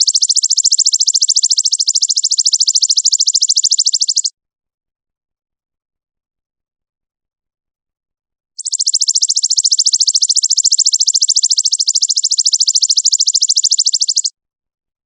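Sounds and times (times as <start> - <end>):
songbird rapid trill: 0.0 - 4.3, 8.6 - 14.3.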